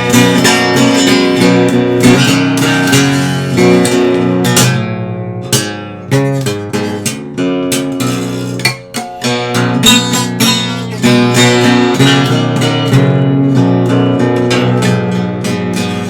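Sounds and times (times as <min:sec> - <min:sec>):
guitar strumming: 0:00.0 - 0:16.0.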